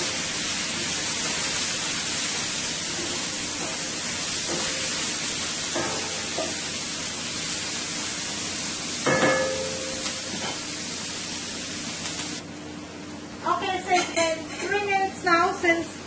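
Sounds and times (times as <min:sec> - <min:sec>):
vegetables sizzling in frying pan: 0:00.0 - 0:12.4.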